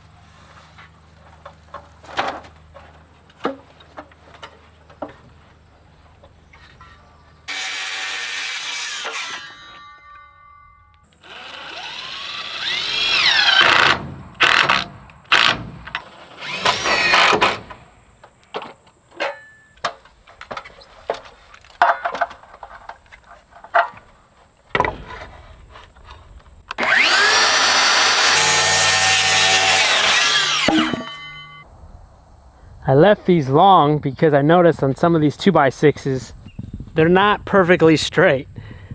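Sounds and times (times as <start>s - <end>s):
power drill spinning: 11.2s - 17.7s, 26.7s - 31.3s.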